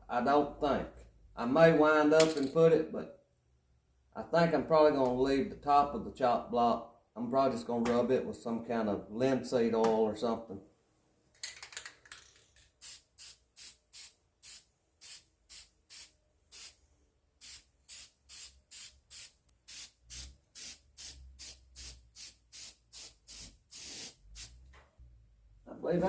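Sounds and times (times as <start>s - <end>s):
lacquer spray hissing bursts: 12.8s - 16.8s, 17.4s - 24.6s.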